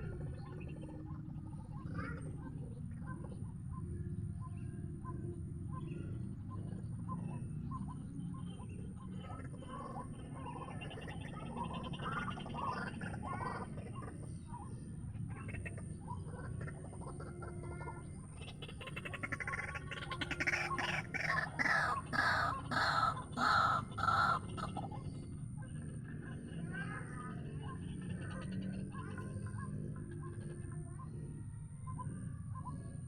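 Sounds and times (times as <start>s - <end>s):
waterhen croaking calls: 15.4s - 25.1s.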